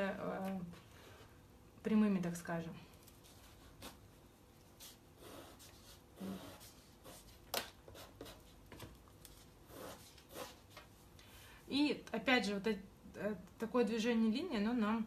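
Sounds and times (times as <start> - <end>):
pencil scratching on paper: 4.8 - 8.6, 9.3 - 10.8.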